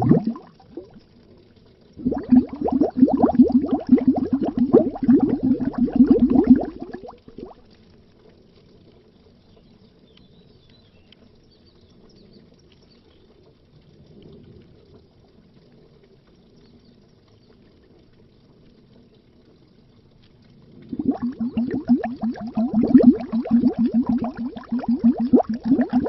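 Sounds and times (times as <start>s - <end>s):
faint underwater bubbling: 0.0s - 9.3s, 13.3s - 26.0s.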